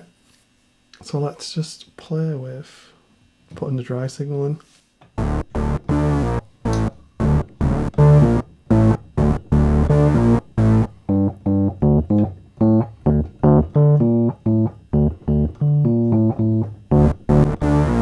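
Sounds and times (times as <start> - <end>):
bass-heavy synth notes: 5.2 - 18.0.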